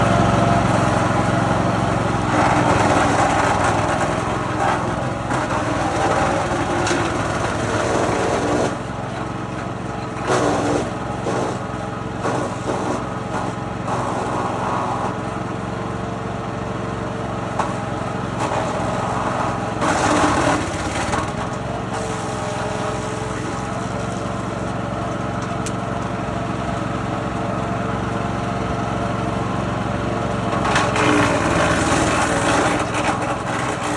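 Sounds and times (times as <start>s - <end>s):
small petrol engine running: 0.0s - 33.9s
wood being chipped: 18.4s - 24.3s, 30.6s - 33.9s.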